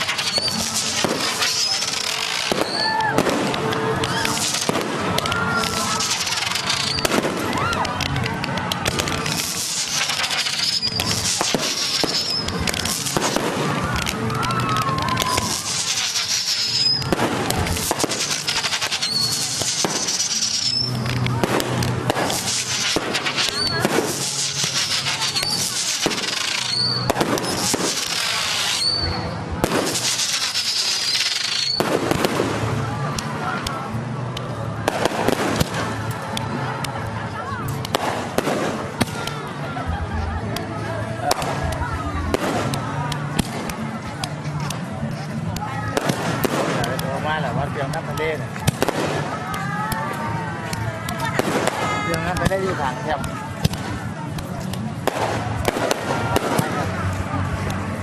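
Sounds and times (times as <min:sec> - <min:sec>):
fireworks whistling: 0:00.0 - 0:33.2, 0:45.9 - 0:57.9
faint music: 0:00.0 - 0:58.0
fireworks crackling and popping: 0:00.0 - 0:58.0.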